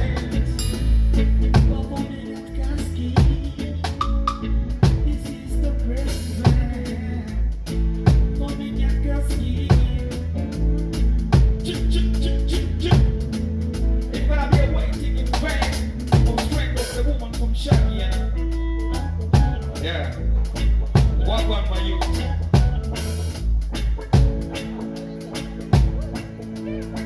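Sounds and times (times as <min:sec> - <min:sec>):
heavy drum hits: 0:00.0 - 0:02.2
live reggae band: 0:00.0 - 0:27.0.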